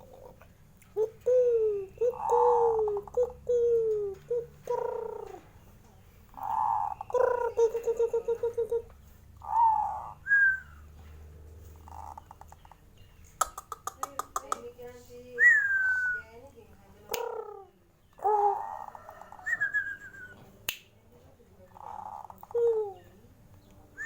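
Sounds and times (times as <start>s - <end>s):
dove cooing: 0.0s - 5.7s, 6.3s - 10.8s, 11.7s - 12.8s, 17.1s - 20.4s, 21.6s - 23.3s.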